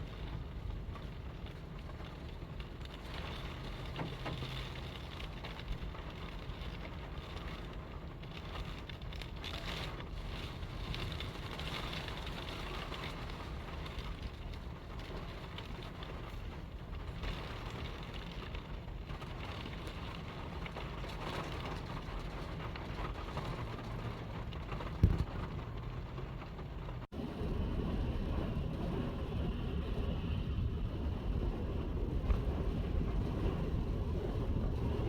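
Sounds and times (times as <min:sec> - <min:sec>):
strong wind buffeting microphone: 0:27.1 - 0:35.0.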